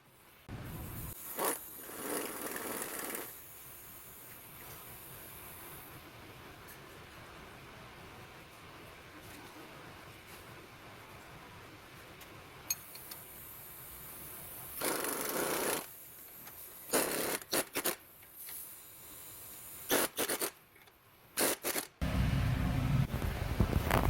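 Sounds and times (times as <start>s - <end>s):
steady low hum: 0.1s - 1.3s, 22.0s - 24.0s.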